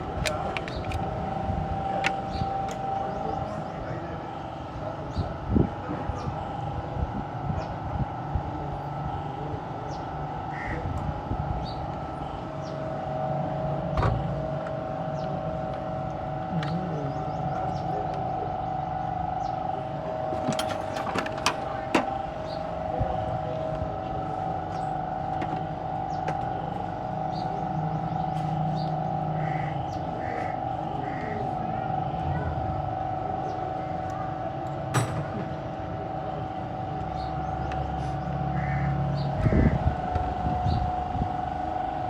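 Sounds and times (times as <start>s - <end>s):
mechanical hum: 0.0s - 42.0s
metallic knocks and clinks: 20.4s - 21.6s.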